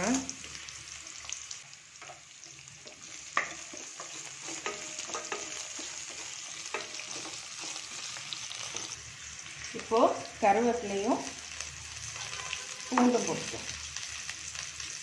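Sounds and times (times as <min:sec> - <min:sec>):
onion sizzling in hot oil: 0:00.0 - 0:15.0
spatula knocking against pan: 0:04.5 - 0:05.9.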